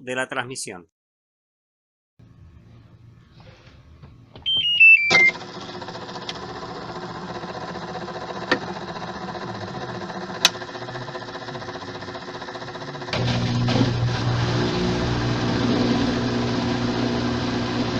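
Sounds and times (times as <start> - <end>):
washing machine humming: 3.9 - 17.9
descending control panel beeps: 4.4 - 5.4.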